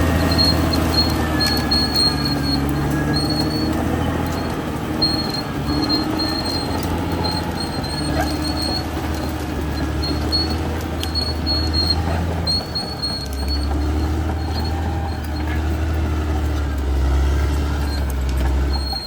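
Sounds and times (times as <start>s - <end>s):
bulldozer diesel engine running: 0.0s - 19.0s
short high squeaks and clicks: 0.0s - 19.0s.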